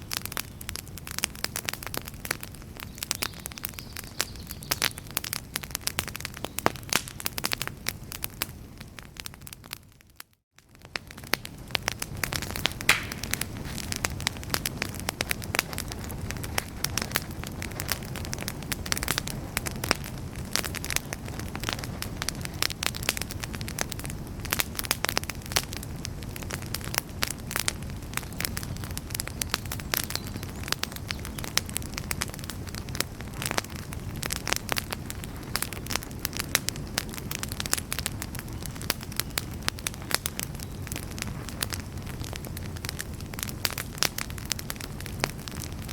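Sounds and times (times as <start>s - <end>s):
campfire crackling and popping: 0.0s - 45.9s
rush of flame: 11.0s - 38.6s.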